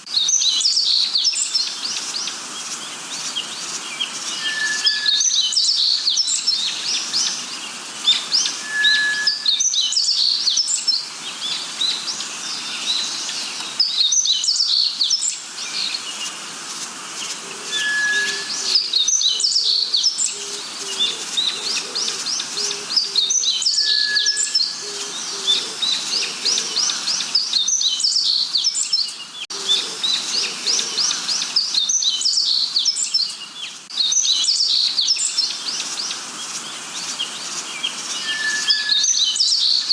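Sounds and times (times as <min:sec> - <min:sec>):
birds chirping and trilling: 0:00.0 - 0:39.9
short pure bird whistle: 0:04.4 - 0:06.2, 0:08.6 - 0:10.6, 0:17.7 - 0:19.8, 0:23.6 - 0:24.7, 0:38.2 - 0:39.8.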